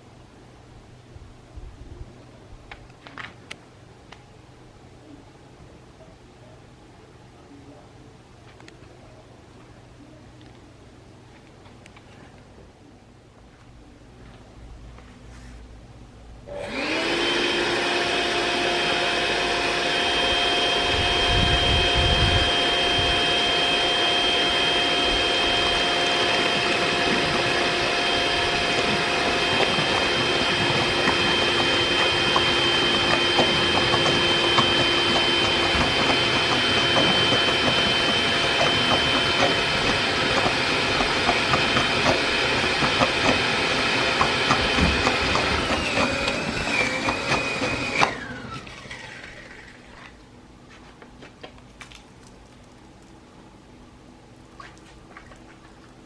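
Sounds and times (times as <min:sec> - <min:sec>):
vacuum cleaner motor whining: 0:16.5 - 0:50.2
crackles and clicks of sucked water: 0:51.6 - 0:53.3, 0:54.5 - 0:56.0.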